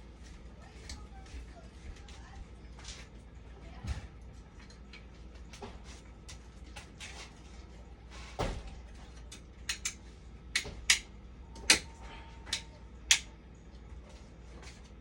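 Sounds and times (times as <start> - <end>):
tools clicking and knocking: 9.3 - 11.9.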